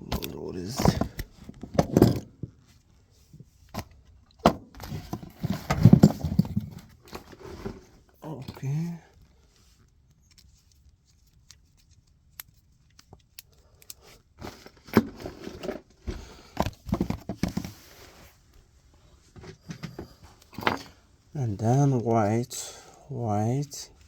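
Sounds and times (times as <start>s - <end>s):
clicks of small parts handled: 9.8s - 14.8s.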